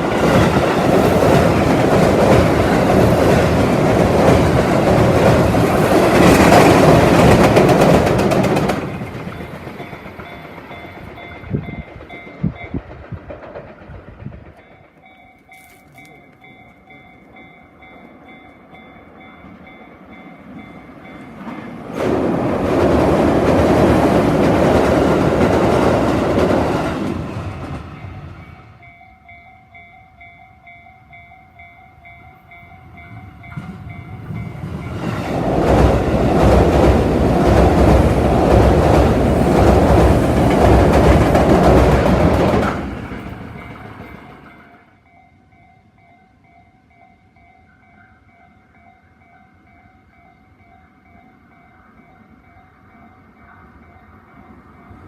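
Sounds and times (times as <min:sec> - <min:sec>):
train wheels clattering over bridge: 0:00.0 - 0:44.9
level crossing bell ringing: 0:15.0 - 0:21.3.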